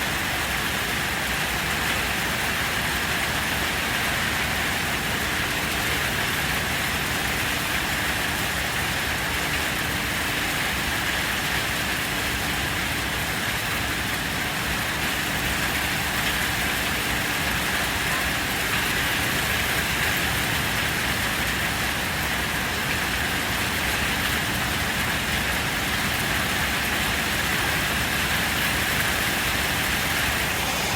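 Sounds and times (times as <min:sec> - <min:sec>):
heavy rain pouring: 0:00.0 - 0:30.9.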